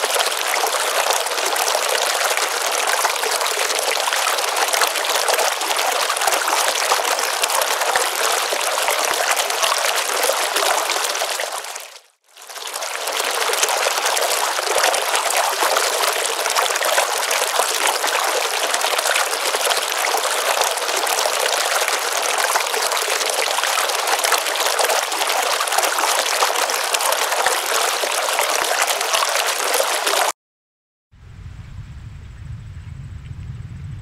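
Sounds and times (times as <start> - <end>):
running water rushing: 0.0 - 30.3.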